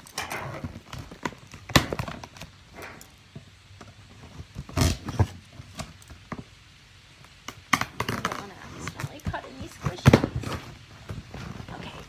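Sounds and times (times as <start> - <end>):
packing tape being cut: 4.6 - 6.1.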